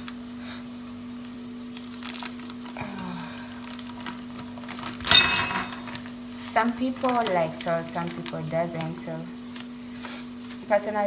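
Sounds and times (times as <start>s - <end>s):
packet crinkling: 1.2s - 9.0s.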